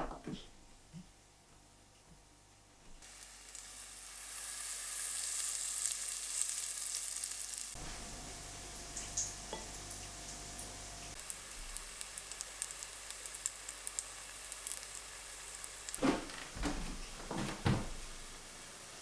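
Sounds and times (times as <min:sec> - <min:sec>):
hot oil sizzling and crackling: 0:03.0 - 0:16.0, 0:18.0 - 0:19.0.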